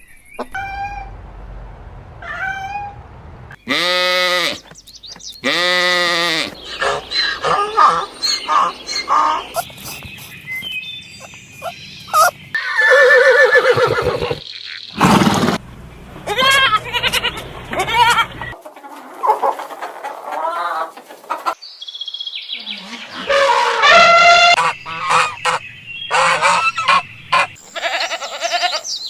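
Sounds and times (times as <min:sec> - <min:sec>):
animal bleats: 0:03.7 - 0:04.6, 0:05.4 - 0:08.0, 0:16.3 - 0:18.4, 0:27.6 - 0:28.9
bird and fowl cries: 0:05.4 - 0:10.4, 0:11.2 - 0:15.0, 0:16.3 - 0:18.6, 0:22.6 - 0:29.0.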